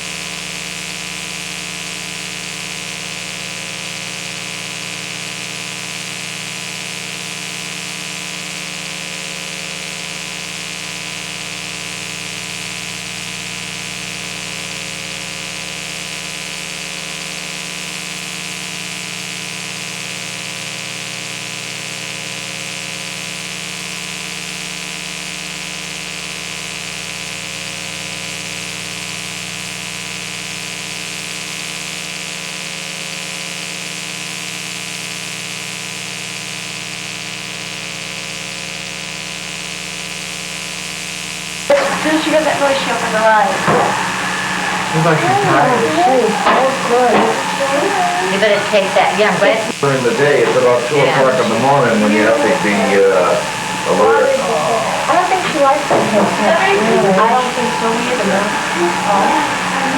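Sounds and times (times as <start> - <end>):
tape hiss: 39.9 - 59.9
electrical hum: 41.6 - 59.9.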